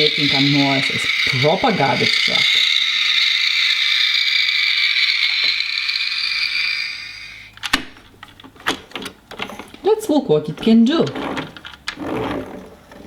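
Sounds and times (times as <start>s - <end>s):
toy electronic sound effect: 0.0s - 7.6s
plastic toy clicks: 0.0s - 9.2s.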